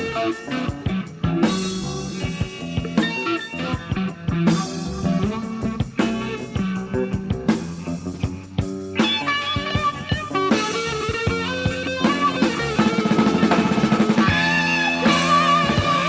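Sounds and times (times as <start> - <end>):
bass guitar: 0.0 - 16.0
drums: 0.0 - 16.0
electric guitar lead: 0.0 - 16.0.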